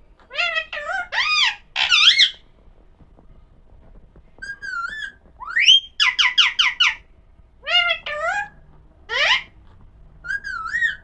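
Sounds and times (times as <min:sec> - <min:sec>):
parrot calling: 0:00.3 - 0:02.4, 0:04.4 - 0:09.6, 0:10.2 - 0:11.0
parrot whistling: 0:04.4 - 0:07.0, 0:10.2 - 0:11.0.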